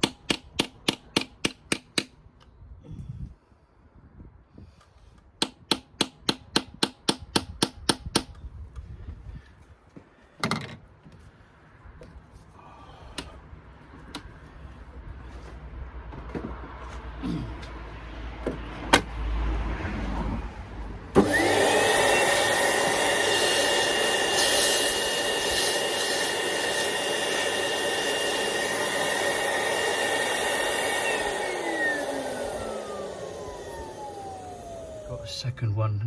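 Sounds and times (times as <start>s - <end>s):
motor whining: 21.2s - 35.2s.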